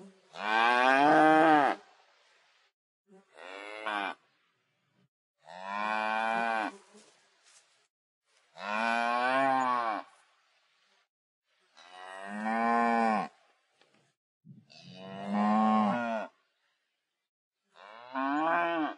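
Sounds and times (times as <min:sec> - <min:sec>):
cattle mooing: 0:14.9 - 0:16.3.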